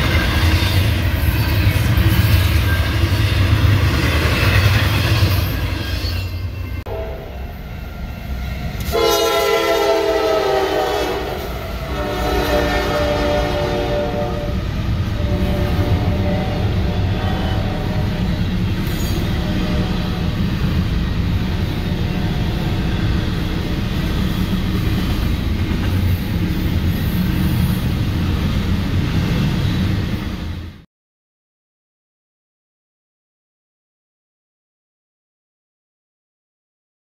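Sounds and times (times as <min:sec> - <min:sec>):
train wheels rumbling on rails: 0:00.0 - 0:30.8
locomotive horn chord: 0:06.9 - 0:07.6, 0:08.8 - 0:18.4, 0:19.2 - 0:20.4.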